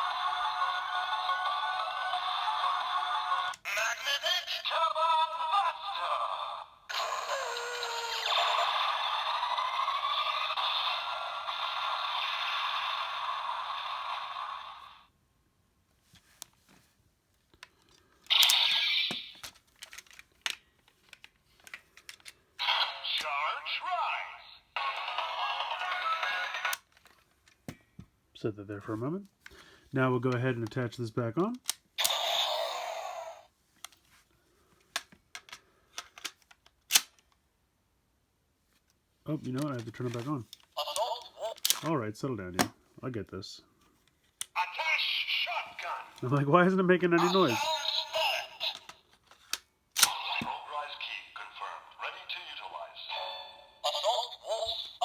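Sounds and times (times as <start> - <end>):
plastic toy parts clicking: 17.5 - 22.4, 34.9 - 37.4, 39.5 - 41.9, 47.3 - 50.3.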